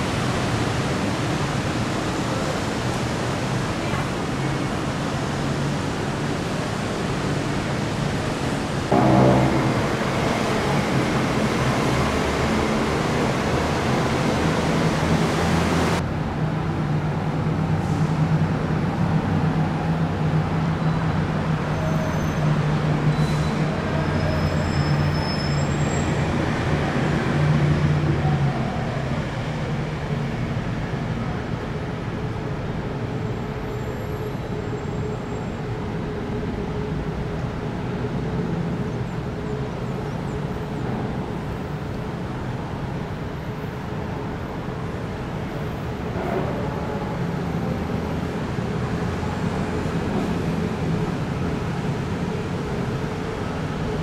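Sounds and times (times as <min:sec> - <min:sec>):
train wheels rumbling on rail: 0:00.0 - 0:54.0
faint high squeals: 0:23.1 - 0:26.2.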